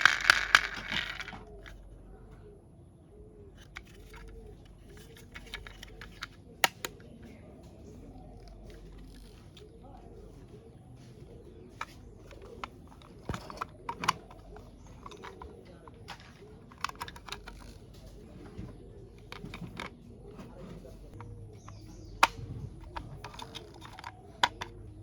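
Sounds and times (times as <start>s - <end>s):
plastic toy parts clicking: 0.0s - 1.8s, 3.6s - 7.0s, 11.8s - 18.1s, 19.2s - 19.9s, 21.1s - 25.0s.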